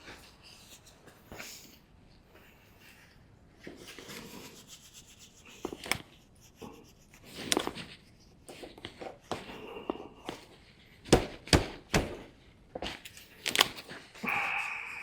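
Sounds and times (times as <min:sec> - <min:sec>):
knock: 0:11.1 - 0:12.2.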